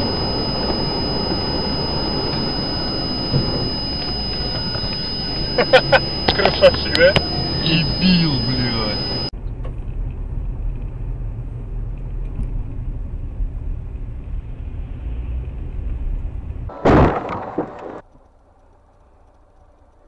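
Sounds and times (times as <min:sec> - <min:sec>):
car engine and road noise: 0:00.0 - 0:20.0
loud collision impact: 0:16.7 - 0:18.0.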